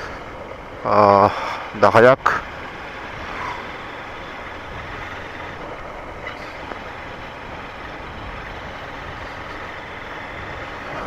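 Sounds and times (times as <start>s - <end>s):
motorcycle road noise: 0.0s - 11.0s
wind rush: 0.0s - 11.0s.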